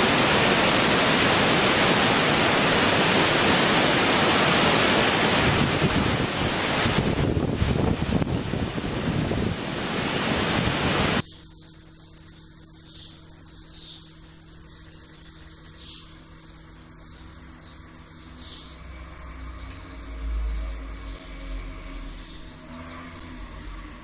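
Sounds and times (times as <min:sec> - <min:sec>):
loud rushing noise: 0:00.0 - 0:11.2
small birds chirping: 0:11.1 - 0:24.0.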